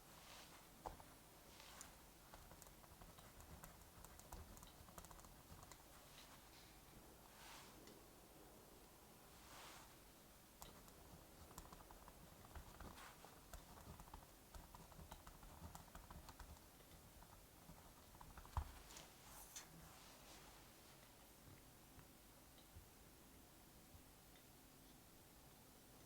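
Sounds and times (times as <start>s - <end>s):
low steady hiss: 0.0s - 26.0s
computer keyboard typing: 2.2s - 5.9s, 10.6s - 18.8s.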